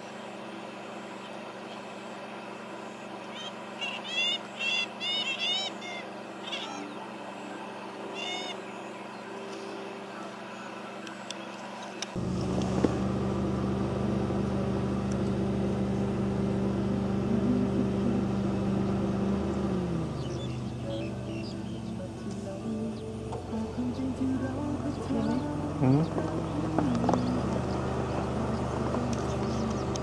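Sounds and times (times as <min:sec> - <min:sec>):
bird calls: 0:00.0 - 0:12.2, 0:18.8 - 0:30.0
low engine hum: 0:00.0 - 0:30.0.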